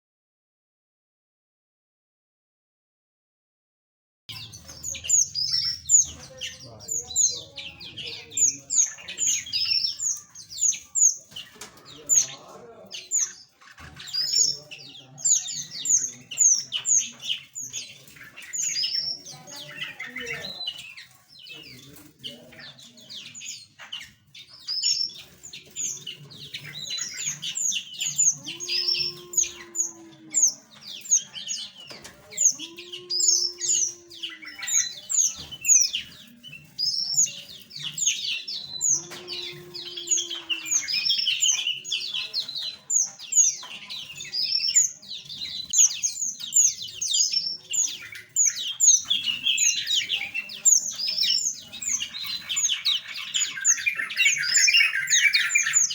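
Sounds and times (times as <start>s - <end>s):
small birds chirping: 4.3s - 55.9s.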